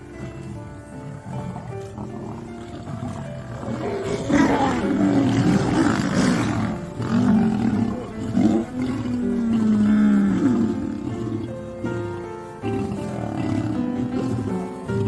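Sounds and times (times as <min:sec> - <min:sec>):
lion roaring: 0:00.0 - 0:15.0.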